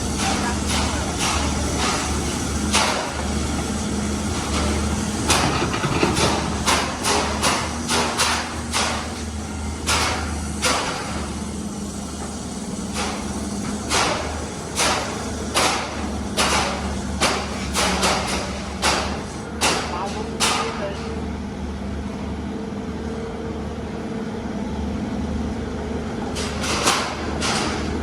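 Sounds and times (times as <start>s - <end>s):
diesel machinery engine drone: 0.0s - 28.0s
metallic knocks and clanks: 5.3s - 9.0s.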